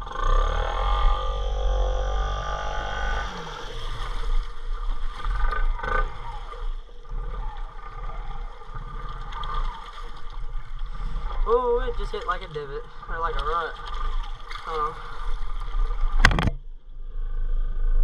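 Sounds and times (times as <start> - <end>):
off-road bike engine: 0.0 - 18.0.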